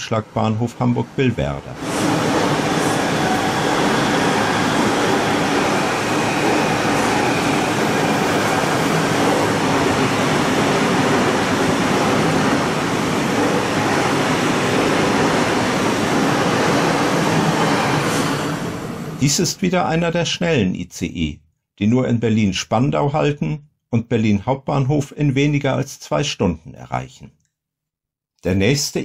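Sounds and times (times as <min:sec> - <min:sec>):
high-speed train passing: 0:00.2 - 0:19.4.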